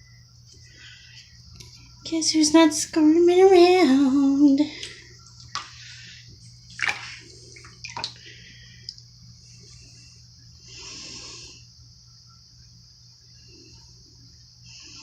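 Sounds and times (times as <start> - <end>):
bathwater splashing and sloshing: 4.8 - 9.0.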